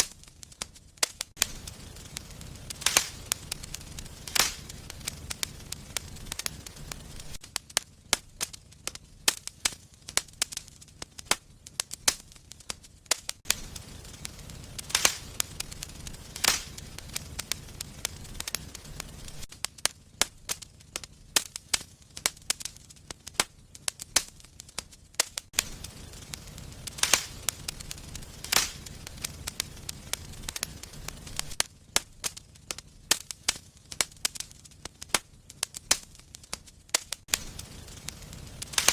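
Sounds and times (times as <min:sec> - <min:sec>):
low rumble of flames: 0:00.0 - 0:38.9
wood fire crackling and popping: 0:00.0 - 0:38.9.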